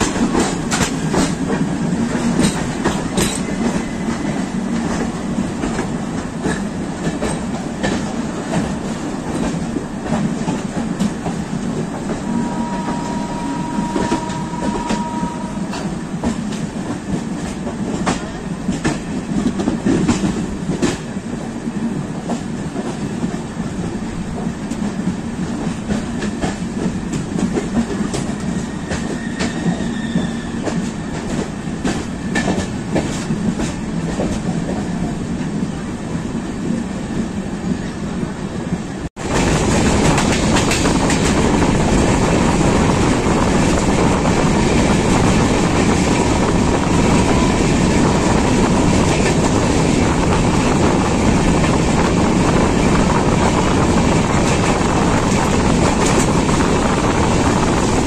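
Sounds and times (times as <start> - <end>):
train rolling rumble: 0.0 - 58.0.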